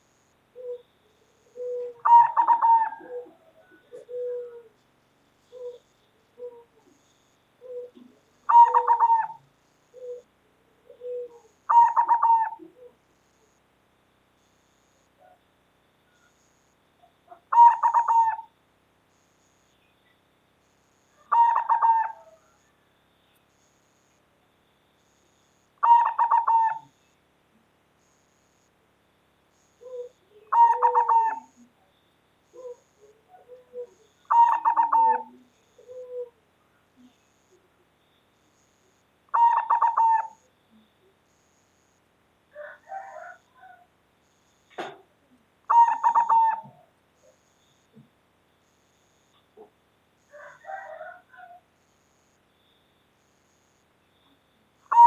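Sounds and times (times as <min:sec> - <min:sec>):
dove cooing: 0:00.6 - 0:04.8, 0:05.4 - 0:13.0, 0:17.0 - 0:18.5, 0:21.2 - 0:22.6, 0:25.8 - 0:27.0, 0:29.8 - 0:31.8, 0:32.5 - 0:37.7, 0:39.3 - 0:41.1, 0:42.5 - 0:43.9, 0:45.7 - 0:47.4, 0:49.6 - 0:51.6, 0:54.8 - 0:55.0.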